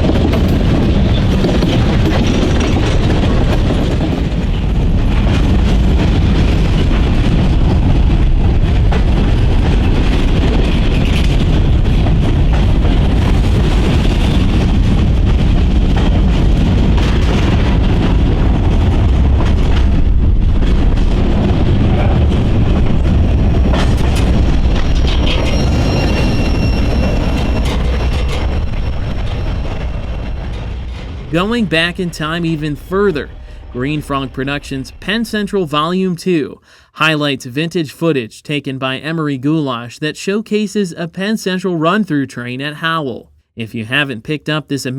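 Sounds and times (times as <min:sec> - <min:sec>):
freight train wheels on rail: 0:00.0 - 0:35.9.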